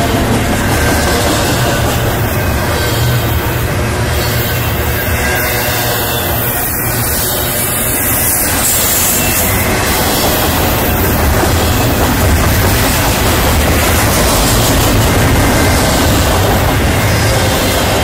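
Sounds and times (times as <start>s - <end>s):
freight train wheels rumbling on rails: 0.0s - 18.0s.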